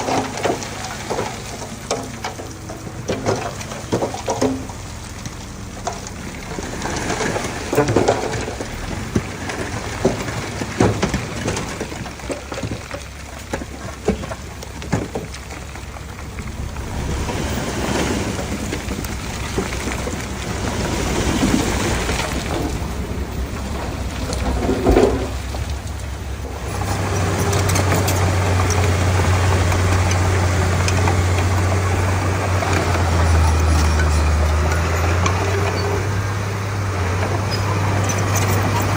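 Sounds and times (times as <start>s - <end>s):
bulldozer track clatter: 0.0s - 38.9s
earth knocking and crackling: 0.0s - 38.9s
low diesel engine drone: 0.0s - 38.9s.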